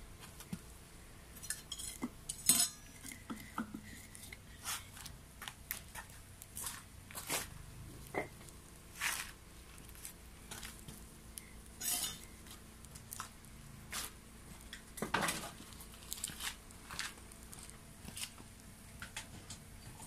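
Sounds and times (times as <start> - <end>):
wood fire crackling and popping: 0.1 - 20.0.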